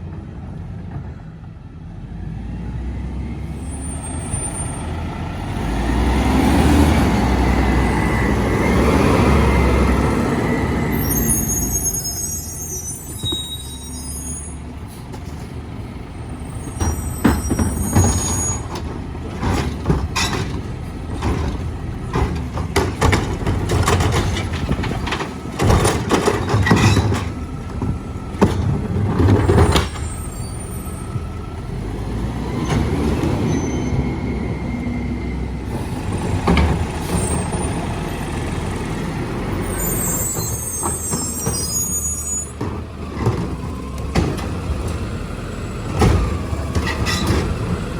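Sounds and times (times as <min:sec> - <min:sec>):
garbage truck diesel engine: 0:00.0 - 0:47.9
air brakes squealing: 0:03.5 - 0:05.0, 0:10.4 - 0:15.1, 0:16.3 - 0:18.8, 0:29.6 - 0:31.2, 0:32.6 - 0:36.0, 0:39.6 - 0:42.6.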